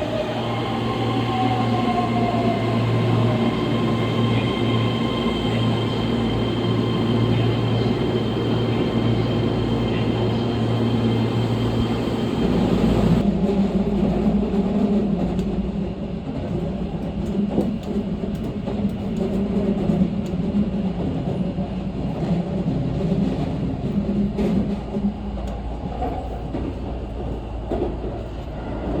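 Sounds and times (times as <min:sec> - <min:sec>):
train rumble inside carriage: 0:00.0 - 0:29.0.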